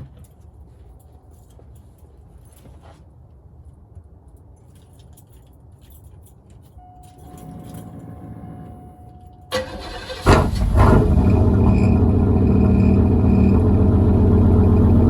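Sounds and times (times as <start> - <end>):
key and ignition sounds: 4.6 - 10.6
engine cranking: 9.5 - 15.0
open-exhaust engine idling: 9.5 - 15.0.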